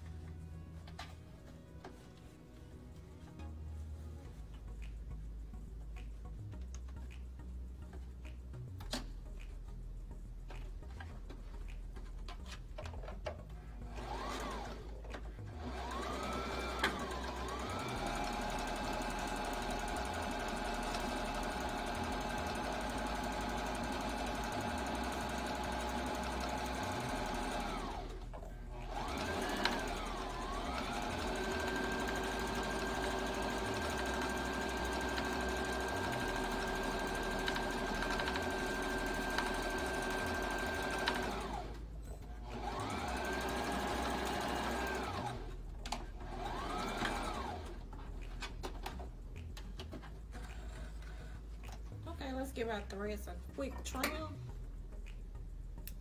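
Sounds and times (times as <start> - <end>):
sewing machine stitching: 13.9 - 41.8, 42.4 - 47.8.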